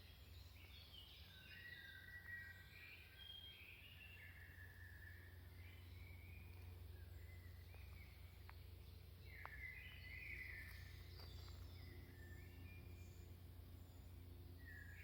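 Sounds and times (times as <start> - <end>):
forest birds chirping: 0.0 - 15.0.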